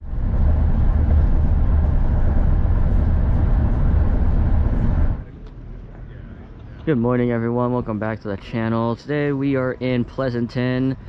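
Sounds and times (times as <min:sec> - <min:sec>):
car engine deep rumble: 0:00.0 - 0:05.3.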